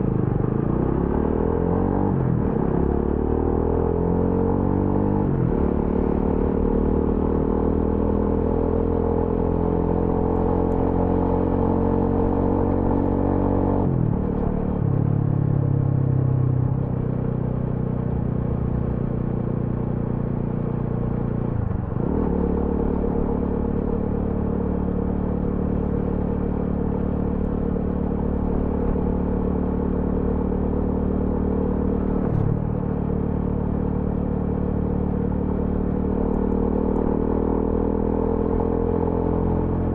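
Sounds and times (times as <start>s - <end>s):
motorcycle engine running: 14.1s - 39.9s.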